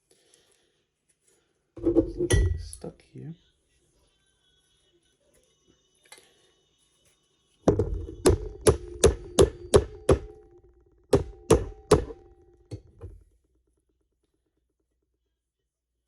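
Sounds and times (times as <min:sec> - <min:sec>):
hammer striking ringing steel: 0:02.2 - 0:02.8, 0:08.2 - 0:12.8.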